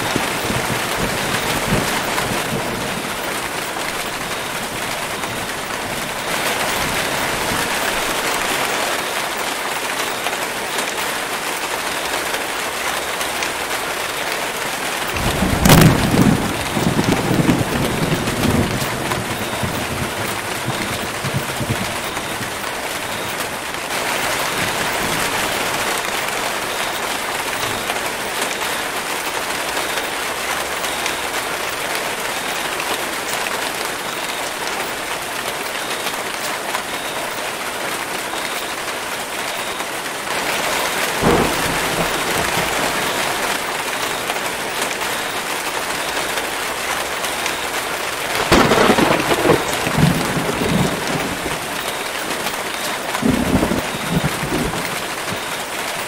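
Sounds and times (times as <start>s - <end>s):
thunder rumbling: 0.0s - 8.7s, 14.8s - 29.0s, 39.7s - 46.5s, 48.3s - 56.0s
rain on foliage: 0.0s - 56.0s.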